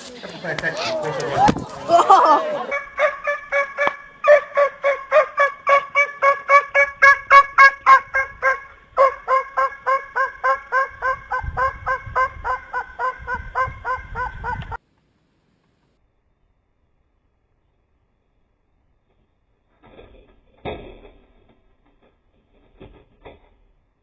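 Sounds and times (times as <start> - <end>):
bird harsh rapid calls: 2.6 - 14.8.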